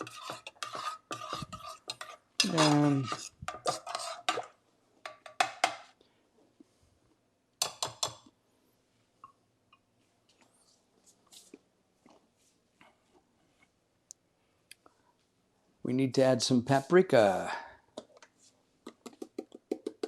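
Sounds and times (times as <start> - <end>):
spoon scraping in saucepan: 0.0 - 5.8.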